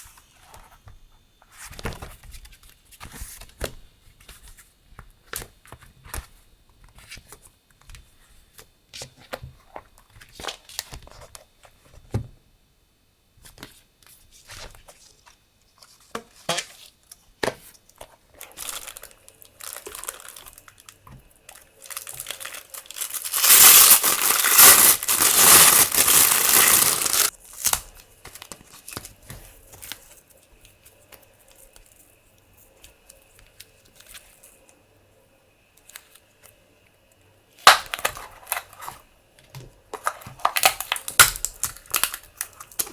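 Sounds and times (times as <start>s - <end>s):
packaging rustling and clicks: 18.0s - 30.1s, 37.6s - 42.9s
packaging tearing and crinkling: 18.4s - 29.2s, 37.6s - 39.0s, 40.0s - 42.9s.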